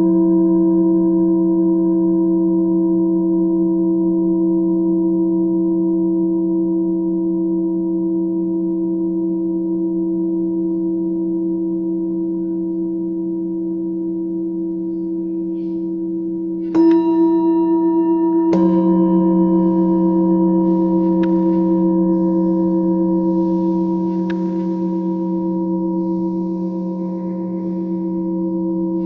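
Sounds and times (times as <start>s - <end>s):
singing bowls ringing: 0.0s - 29.0s
singing bowl struck: 14.6s - 29.0s.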